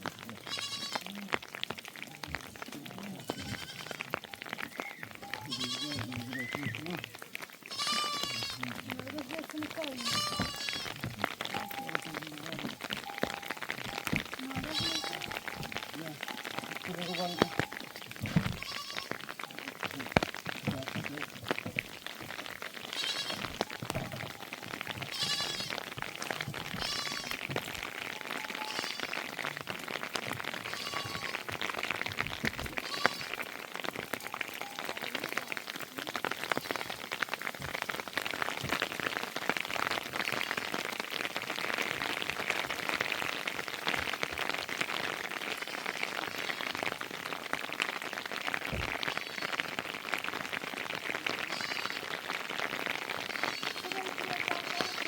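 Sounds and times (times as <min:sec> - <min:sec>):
heavy rain with drips: 0:00.0 - 0:55.0
sheep bleating: 0:00.1 - 0:01.5, 0:02.9 - 0:07.1, 0:07.7 - 0:20.2, 0:22.7 - 0:27.5, 0:28.3 - 0:29.7, 0:30.4 - 0:31.7, 0:32.6 - 0:33.5, 0:45.3 - 0:47.0, 0:48.9 - 0:49.8, 0:51.2 - 0:52.3, 0:53.1 - 0:55.0.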